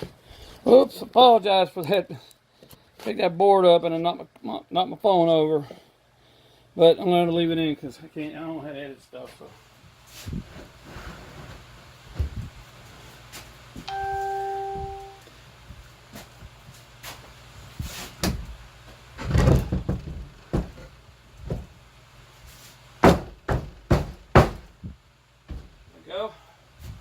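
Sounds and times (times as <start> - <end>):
electronic beep: 13.9 - 15.2
wooden board knocks and thumps: 19.2 - 20.9.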